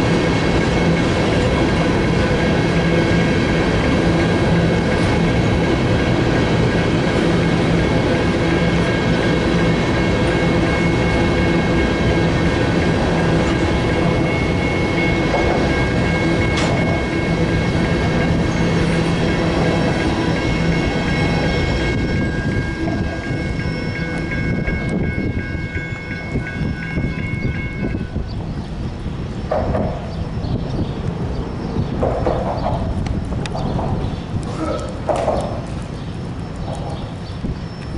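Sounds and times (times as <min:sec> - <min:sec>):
freight cars rumbling on rails: 0:00.0 - 0:37.9
high-pitched ringing tones: 0:08.7 - 0:28.4.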